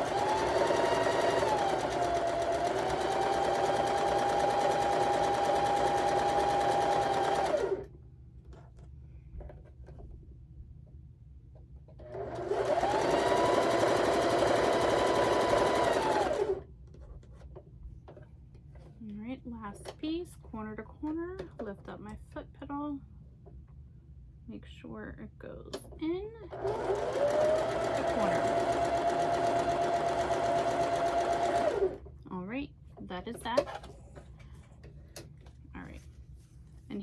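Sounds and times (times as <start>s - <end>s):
sewing machine motor whine: 0.0s - 7.8s, 12.0s - 16.6s, 26.5s - 32.0s.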